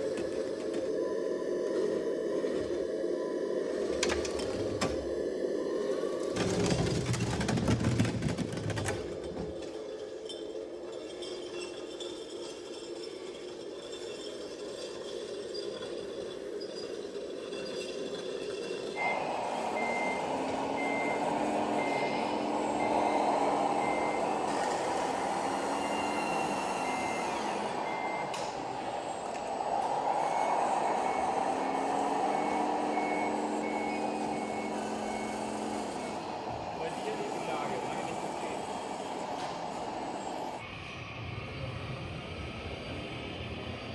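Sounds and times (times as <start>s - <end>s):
whine of drive motor and gears: 0.0s - 10.9s, 13.8s - 43.9s
toy truck engine sound: 13.2s - 40.6s
reverse warning beeper: 19.0s - 36.3s.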